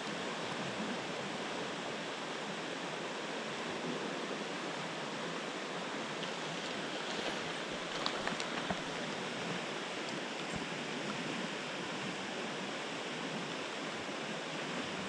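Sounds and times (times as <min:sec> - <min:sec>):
river flowing over rocks: 0:00.0 - 0:15.0.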